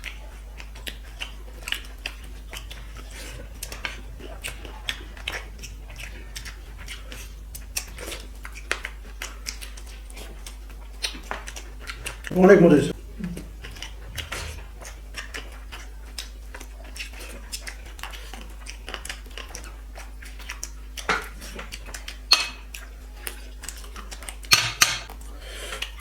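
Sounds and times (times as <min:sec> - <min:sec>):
dishes clinking: 0:22.3 - 0:22.7, 0:24.5 - 0:25.1.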